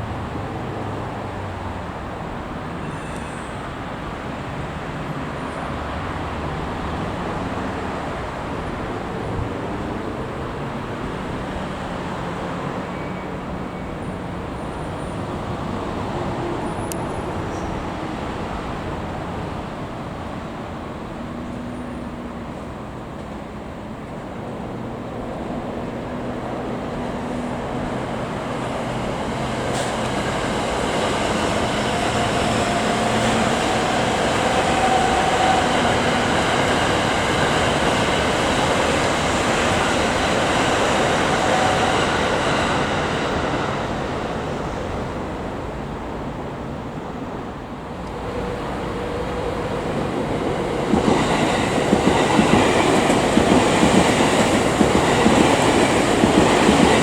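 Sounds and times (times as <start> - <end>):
train wheels rumbling: 0.0 - 57.0
electric train whining: 25.8 - 46.8, 47.8 - 57.0.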